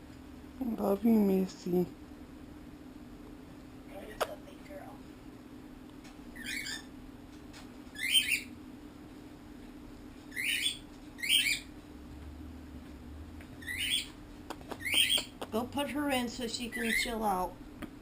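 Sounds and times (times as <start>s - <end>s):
pet bird squawking: 6.3s - 7.0s, 7.9s - 8.6s, 10.3s - 11.7s, 13.6s - 14.2s, 14.8s - 15.4s, 16.6s - 17.3s.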